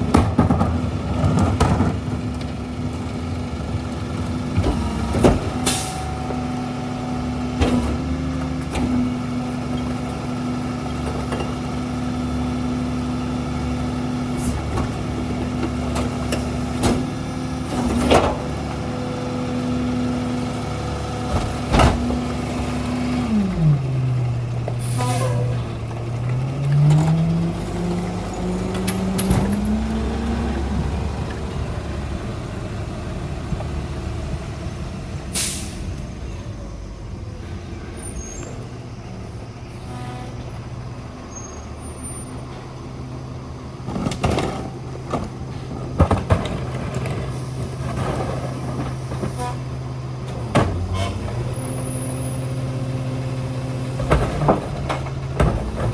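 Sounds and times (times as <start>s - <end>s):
garbage truck engine running: 0.0s - 55.9s
metal clanks and knocks: 54.0s - 55.9s.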